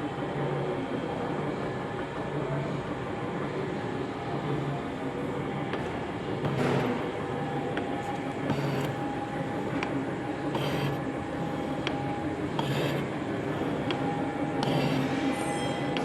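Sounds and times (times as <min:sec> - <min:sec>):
mechanical hum: 0:00.0 - 0:16.0
metal shaping machine ram strokes: 0:07.8 - 0:09.9, 0:10.5 - 0:16.0.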